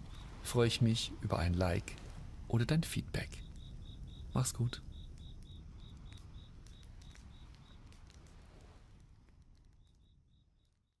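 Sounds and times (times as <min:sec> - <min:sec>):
crickets chirping: 0:00.0 - 0:08.8, 0:09.6 - 0:11.0
campfire crackling and popping: 0:00.0 - 0:11.0.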